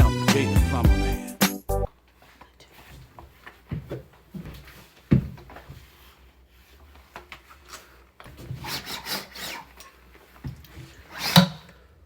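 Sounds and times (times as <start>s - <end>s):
rubbing and scraping: 4.5s - 11.4s.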